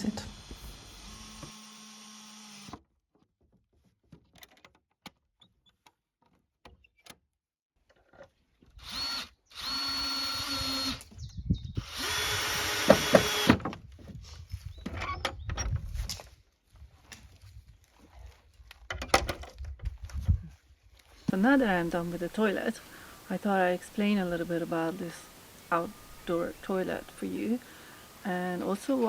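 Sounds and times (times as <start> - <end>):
power drill running: 0.0 - 2.8, 8.8 - 11.1, 11.8 - 13.6, 21.3 - 29.0.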